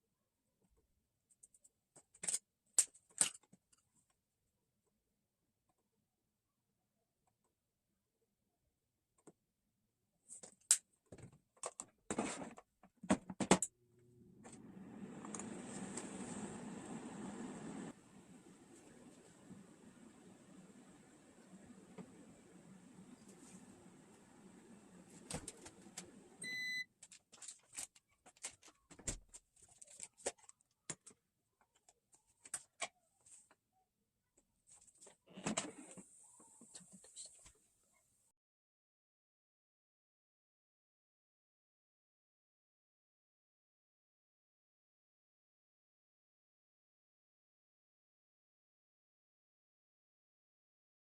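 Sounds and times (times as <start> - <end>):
electronic appliance beep: 26.4 - 26.9.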